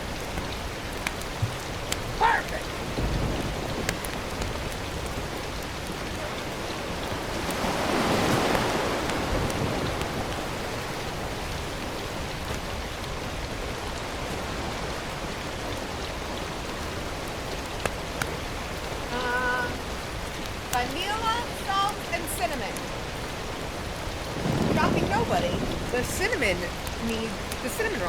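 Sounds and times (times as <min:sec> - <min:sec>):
rain hiss: 0:00.0 - 0:28.0
faint clicks: 0:00.2 - 0:06.4.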